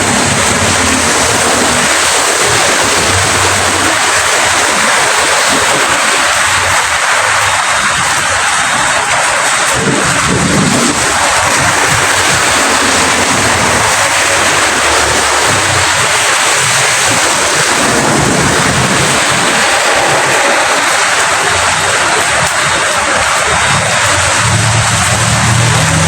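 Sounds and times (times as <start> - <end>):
heavy rainfall: 0.0 - 26.0
low rumble: 9.8 - 26.0.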